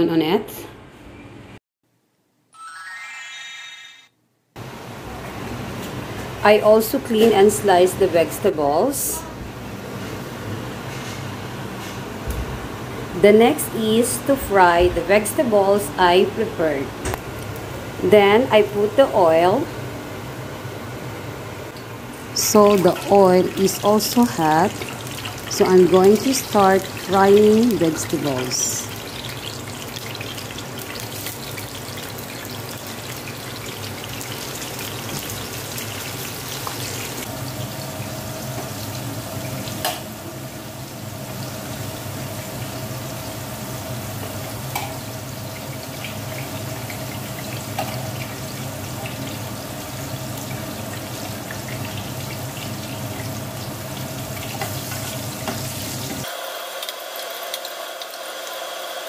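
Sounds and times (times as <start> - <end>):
vegetables sizzling in hot oil: 22.4 - 59.0.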